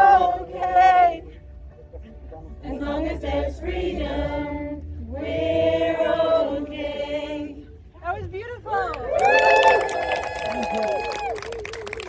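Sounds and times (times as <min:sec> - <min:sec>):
crowd singing unaccompanied: 0:00.0 - 0:01.4, 0:02.6 - 0:07.9.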